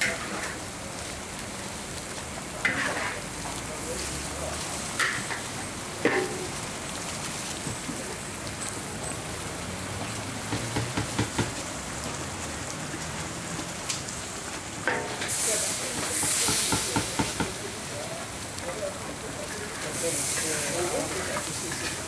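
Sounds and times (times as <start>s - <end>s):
spice paste sizzling in oil: 0.0s - 22.0s
metal spatula knocking wok: 10.5s - 11.6s.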